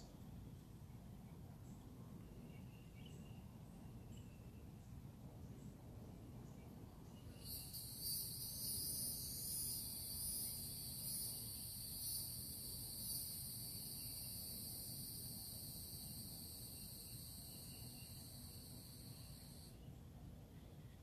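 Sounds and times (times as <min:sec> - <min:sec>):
insect high-pitched buzz: 0:07.3 - 0:19.8.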